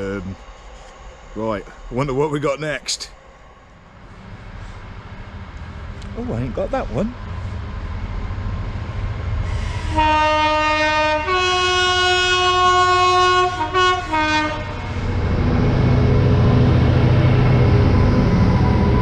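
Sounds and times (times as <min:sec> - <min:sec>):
train engine rumble: 0:00.0 - 0:19.0
locomotive two-tone horn: 0:09.6 - 0:15.1.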